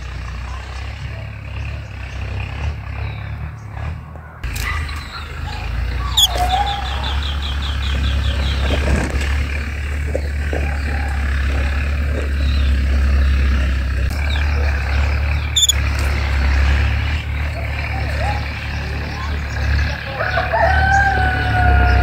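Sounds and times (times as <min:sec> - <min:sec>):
small birds chirping: 0:04.4 - 0:22.0.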